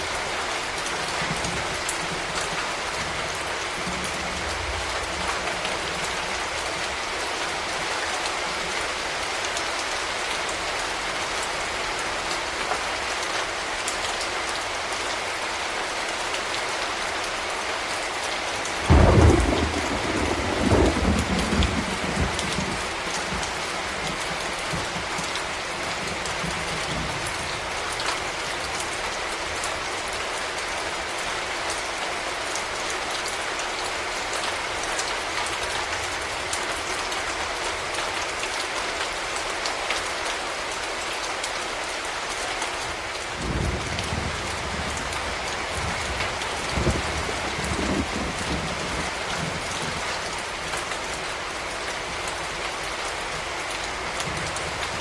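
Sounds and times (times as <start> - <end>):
steady rain falling: 0.0 - 55.0
thunderclap rumbling: 18.9 - 25.2, 43.4 - 50.0.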